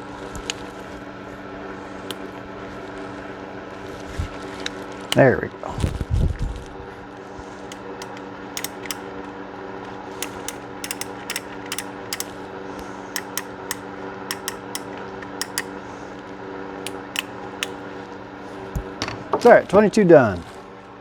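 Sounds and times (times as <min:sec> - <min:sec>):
revolver action clicking: 0:07.2 - 0:19.0.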